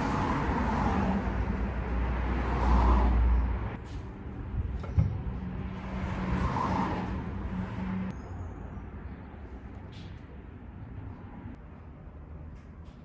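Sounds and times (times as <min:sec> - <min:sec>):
vehicle passing: 0:00.0 - 0:03.8, 0:05.2 - 0:08.1
road traffic noise: 0:00.0 - 0:12.9.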